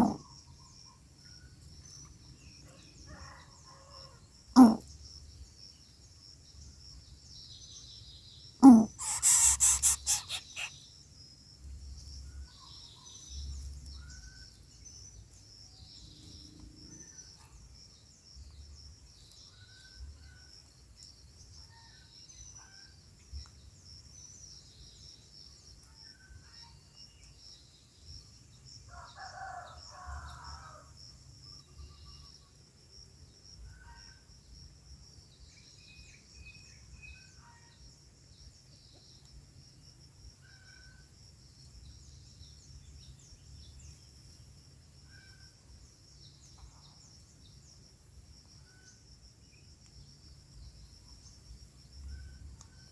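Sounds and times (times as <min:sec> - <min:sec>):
insects buzzing: 0:01.6 - 0:21.6
bird chirps: 0:08.6 - 0:10.8
rooster crowing: 0:09.0 - 0:10.7.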